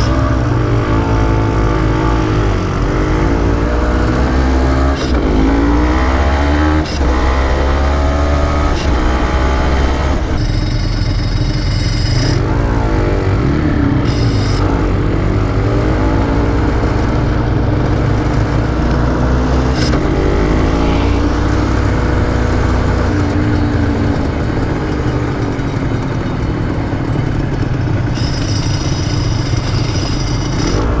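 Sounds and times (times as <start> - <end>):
high steady whine: 0.0 - 31.0
two-stroke engine revving: 0.0 - 31.0.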